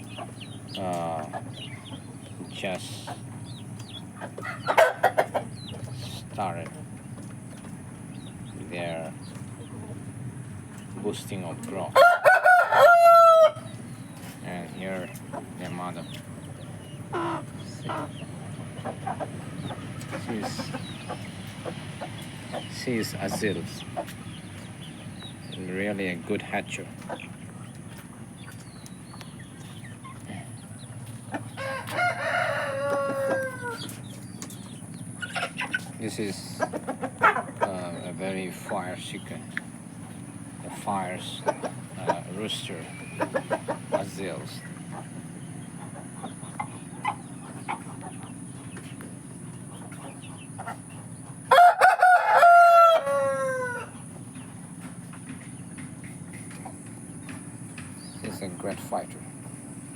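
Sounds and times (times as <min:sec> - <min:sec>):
soft clucks: 0:00.0 - 0:10.0, 0:14.1 - 0:25.3, 0:26.4 - 0:32.0, 0:32.8 - 0:51.4
rooster crowing: 0:12.0 - 0:13.8, 0:31.5 - 0:34.0, 0:51.4 - 0:54.0.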